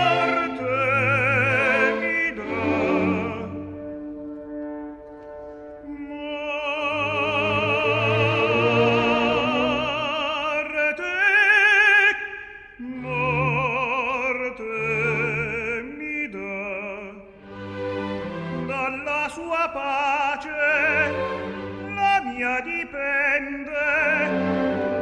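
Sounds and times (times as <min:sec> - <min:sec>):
opera singer with vibrato: 0:00.0 - 0:03.6, 0:05.8 - 0:17.3
orchestral accompaniment: 0:00.0 - 0:12.1, 0:12.8 - 0:25.0.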